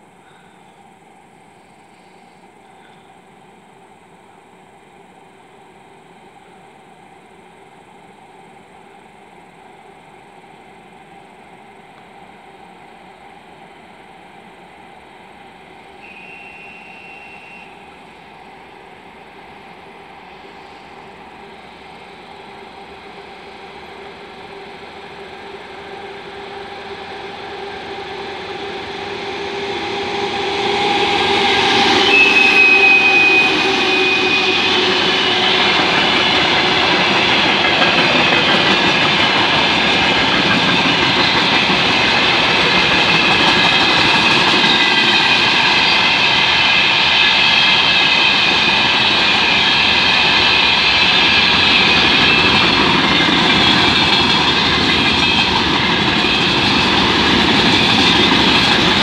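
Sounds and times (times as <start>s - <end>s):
diesel locomotive passing: 0.0s - 59.0s
freight wagons rumbling on rails: 21.3s - 59.0s
high whine: 23.8s - 59.0s.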